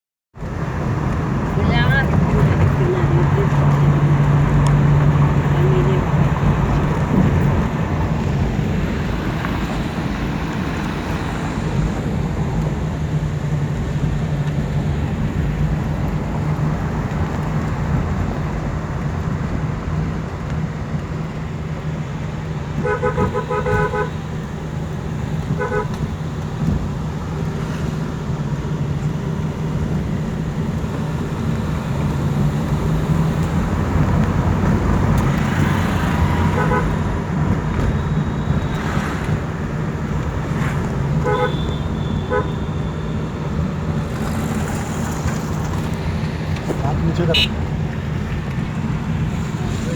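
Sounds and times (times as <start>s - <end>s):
car engine and tyre drone: 0.3s - 49.9s
vehicle horn honking: 22.8s - 24.3s, 25.5s - 26.0s, 36.2s - 37.1s, 41.2s - 43.1s, 47.2s - 47.6s.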